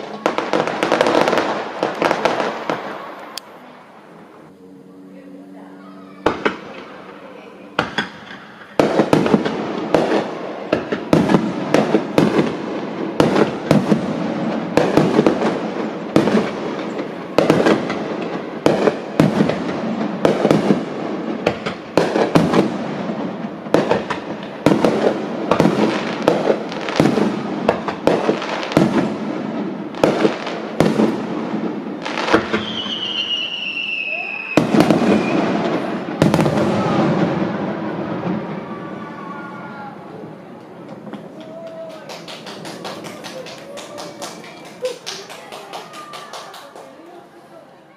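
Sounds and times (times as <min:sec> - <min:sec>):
fireworks bangs and crackles: 0:00.0 - 0:04.4, 0:06.2 - 0:47.2
falling firework whistle: 0:32.1 - 0:39.9.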